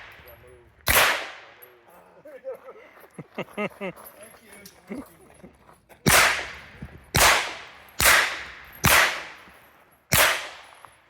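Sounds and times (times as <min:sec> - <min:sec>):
pistol shots echoing: 0:00.0 - 0:01.7, 0:06.1 - 0:10.9.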